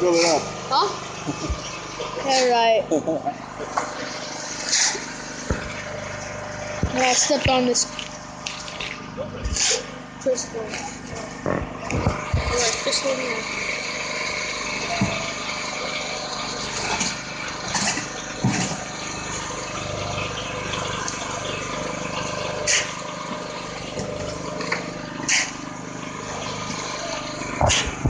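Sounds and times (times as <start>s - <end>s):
motor running steadily: 0.0s - 28.0s.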